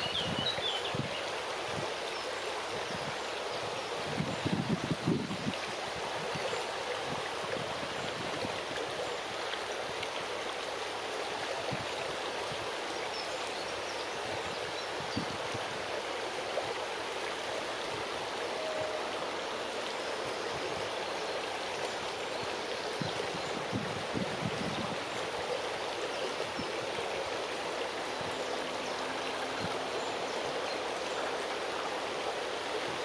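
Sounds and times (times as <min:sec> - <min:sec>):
wind rushing through leaves: 0:00.0 - 0:33.0
wind buffeting microphone: 0:04.0 - 0:05.6, 0:23.0 - 0:25.1.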